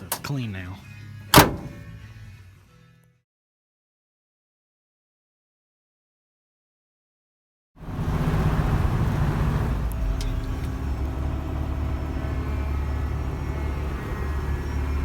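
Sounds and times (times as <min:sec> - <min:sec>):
vehicle engine rumbling: 0:01.2 - 0:02.4, 0:07.8 - 0:15.0.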